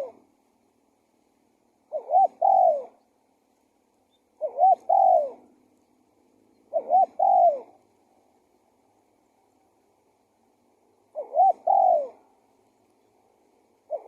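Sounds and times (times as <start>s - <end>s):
dove cooing: 0.0s - 0.3s, 1.8s - 3.1s, 4.1s - 5.6s, 6.6s - 7.9s, 11.0s - 12.4s, 13.8s - 14.0s.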